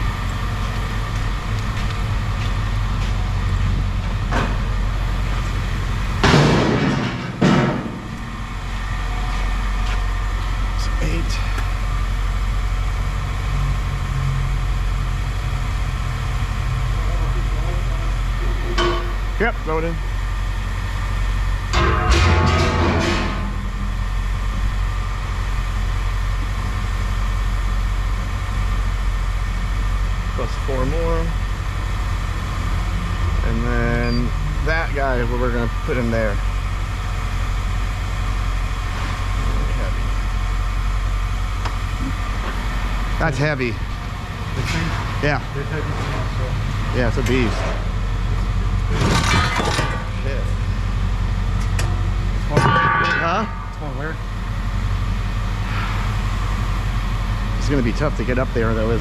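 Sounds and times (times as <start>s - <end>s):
engine idling: 0.0s - 59.0s
loud harsh noises: 52.5s - 54.1s.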